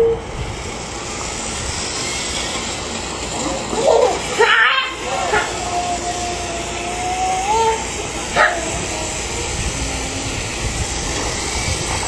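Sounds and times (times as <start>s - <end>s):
steady hiss: 0.0s - 12.0s
dog yelp: 3.7s - 6.4s, 7.4s - 8.8s
dog whining: 3.7s - 9.1s.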